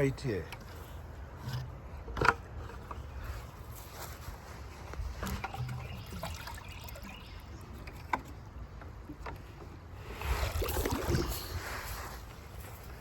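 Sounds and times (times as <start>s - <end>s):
water splashing in a bucket: 5.2s - 8.3s, 10.3s - 11.5s.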